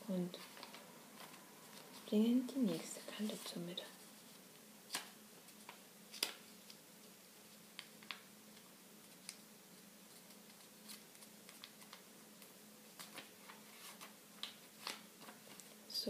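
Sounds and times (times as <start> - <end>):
faint steady hum: 0.0 - 16.0
paper being folded and creased: 0.4 - 2.2, 4.2 - 9.4, 10.0 - 12.0, 12.9 - 15.8.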